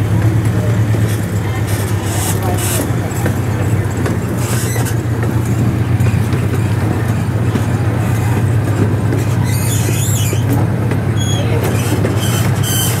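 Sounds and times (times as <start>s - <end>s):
cars rumbling over rails: 0.0s - 13.0s
ride train drone: 0.0s - 13.0s
high squeaks: 1.0s - 5.2s, 9.2s - 10.6s, 11.2s - 13.0s.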